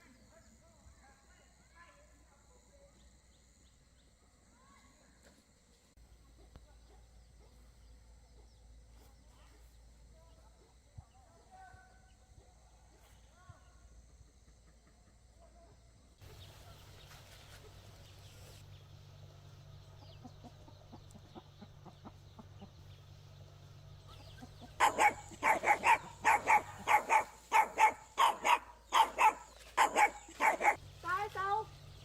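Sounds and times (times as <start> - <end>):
faint low hum: 0.0 - 32.0
animal calling loudly: 24.7 - 30.8.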